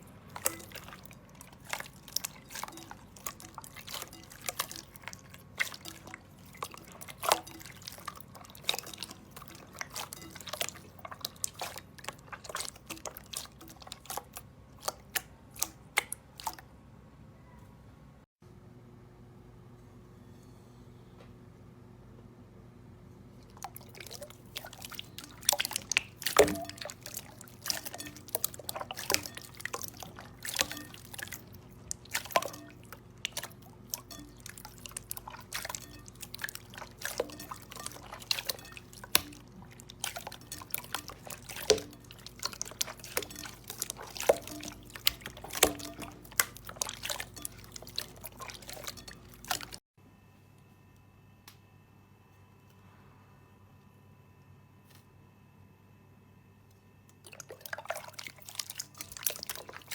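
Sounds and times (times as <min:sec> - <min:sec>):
slime squelching wet clicks: 0:00.0 - 0:16.6, 0:23.5 - 0:49.8, 0:57.2 - 0:59.9.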